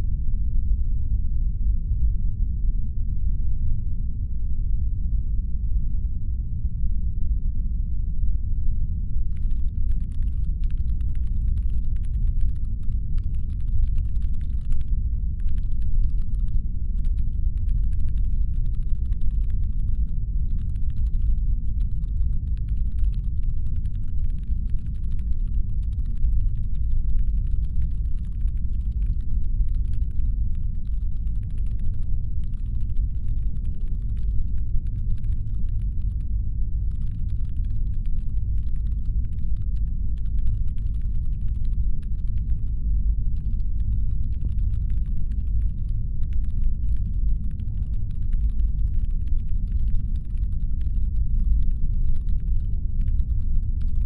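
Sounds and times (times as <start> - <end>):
rapid fine ticking: 9.4 - 21.4, 30.6 - 36.0, 46.4 - 54.0.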